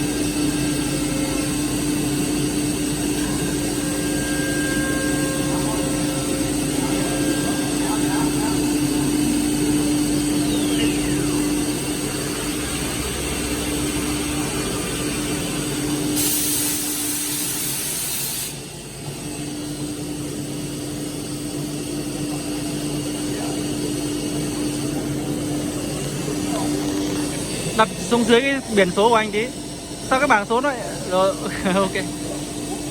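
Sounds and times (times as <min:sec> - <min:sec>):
machine humming with high whine: 0:00.0 - 0:32.9
air blast hiss: 0:16.1 - 0:18.8.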